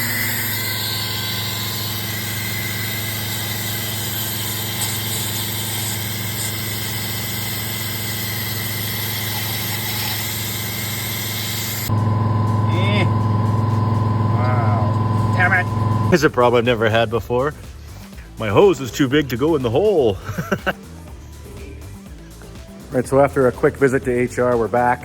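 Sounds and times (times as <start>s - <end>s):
vacuum motor humming and whining: 0.0s - 16.1s.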